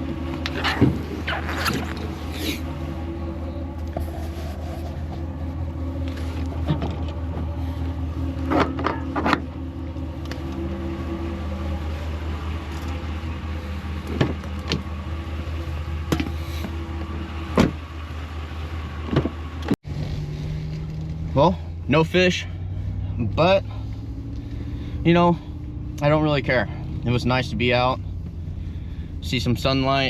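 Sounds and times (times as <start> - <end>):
car engine and road drone: 0.0 - 30.0.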